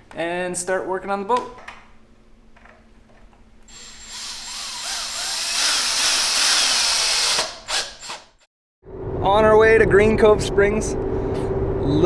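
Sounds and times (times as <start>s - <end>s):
power drill whining: 3.7s - 8.3s.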